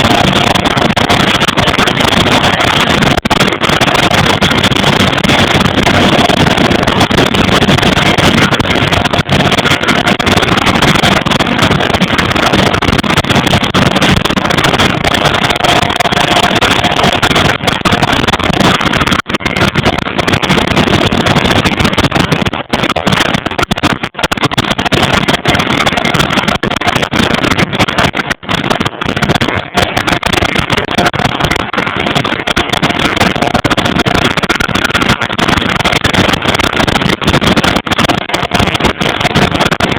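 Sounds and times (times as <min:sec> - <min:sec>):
turboprop engines roaring: 0:00.0 - 0:26.6
engine whine: 0:00.0 - 0:36.0.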